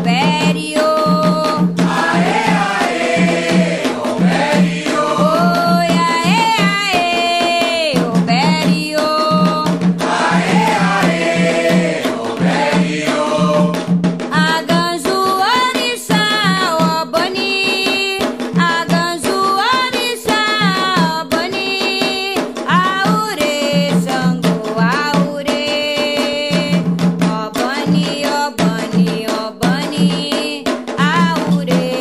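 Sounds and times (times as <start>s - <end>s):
steady drum rhythm: 0.0s - 32.0s
voices chanting: 1.9s - 5.8s, 10.0s - 13.8s.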